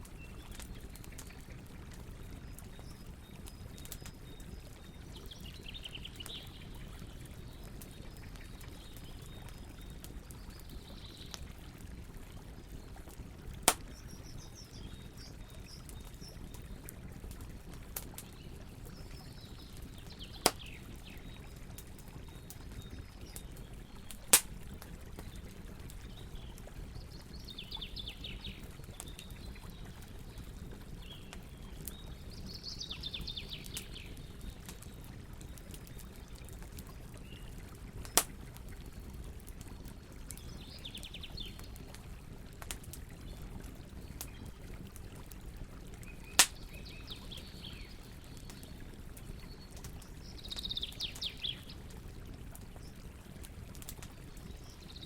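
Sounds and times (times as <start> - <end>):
campfire crackling: 0.0 - 32.5, 33.4 - 55.0
loud pops from fire: 13.6 - 14.0, 20.4 - 20.7, 24.1 - 24.6, 38.0 - 38.4, 46.4 - 46.6.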